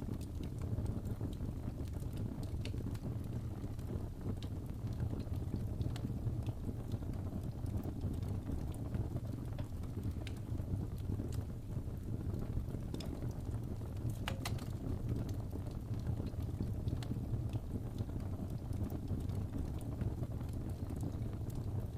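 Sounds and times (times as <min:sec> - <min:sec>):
fire crackling in fireplace: 0:00.0 - 0:21.9
sharp pops and snaps: 0:07.5 - 0:19.9.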